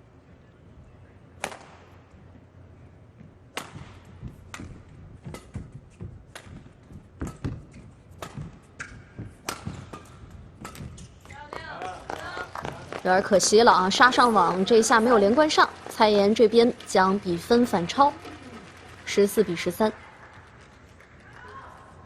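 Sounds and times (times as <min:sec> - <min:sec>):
rackets hitting shuttlecock: 0:01.4 - 0:01.9, 0:03.5 - 0:12.8.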